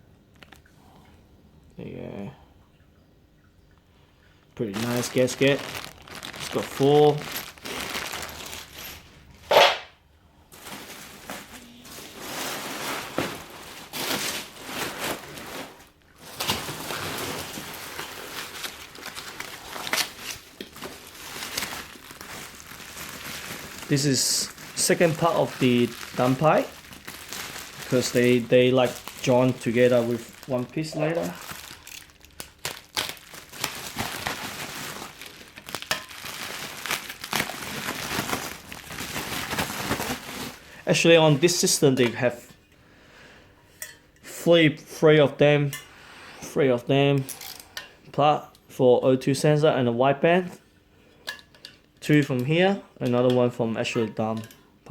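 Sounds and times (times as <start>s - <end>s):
packing material crinkling: 4.6s - 9.8s, 10.5s - 41.8s.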